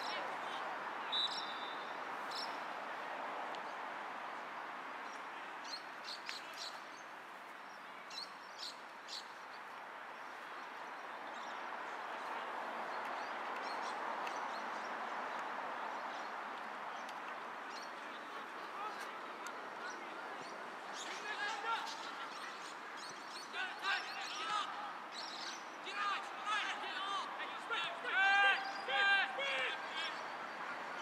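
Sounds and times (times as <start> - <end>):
outdoor background noise: 0.0 - 31.0
high bird chirps: 1.1 - 2.6.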